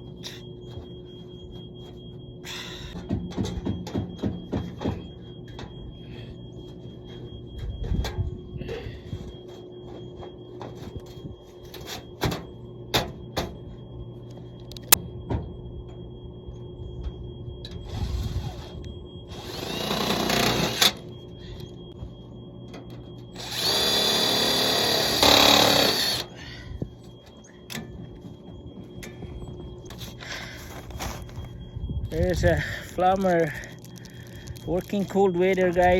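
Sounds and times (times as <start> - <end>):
power drill whirring: 19.3 - 21.0, 23.4 - 26.3.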